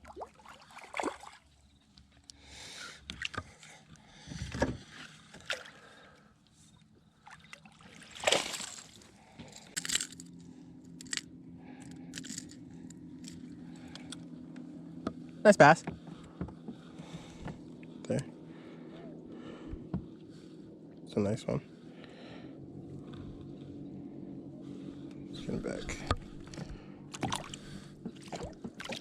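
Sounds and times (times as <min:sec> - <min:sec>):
water splashing: 0:00.0 - 0:01.4, 0:07.2 - 0:09.1, 0:27.1 - 0:29.0
knocks and scrapes against kayak: 0:04.2 - 0:05.5
low electric motor hum: 0:08.0 - 0:29.0.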